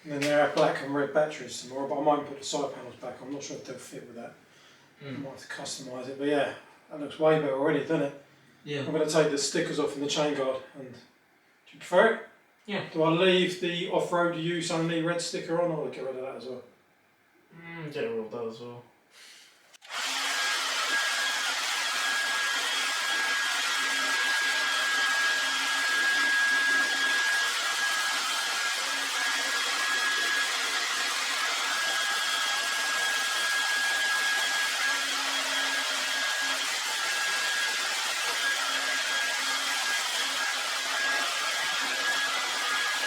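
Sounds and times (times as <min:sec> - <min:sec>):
hot-air blower rushing and whining: 0:19.8 - 0:43.0.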